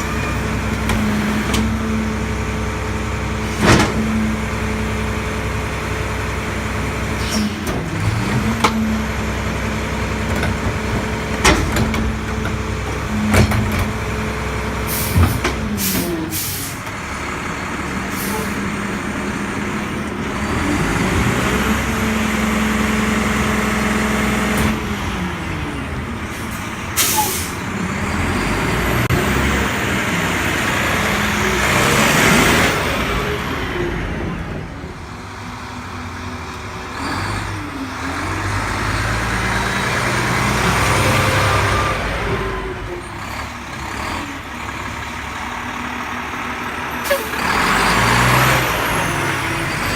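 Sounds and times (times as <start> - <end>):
diesel truck engine revving: 0.0 - 49.9
air-brake hisses: 14.9 - 16.8, 26.3 - 27.6.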